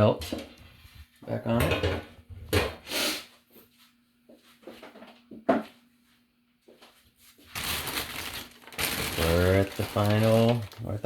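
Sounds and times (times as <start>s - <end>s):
rustling: 7.3s - 11.0s.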